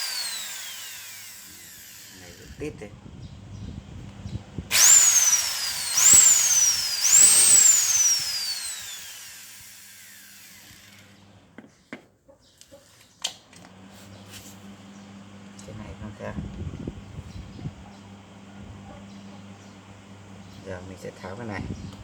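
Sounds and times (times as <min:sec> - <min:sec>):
electric motor whining: 0:00.0 - 0:02.8, 0:04.7 - 0:11.3.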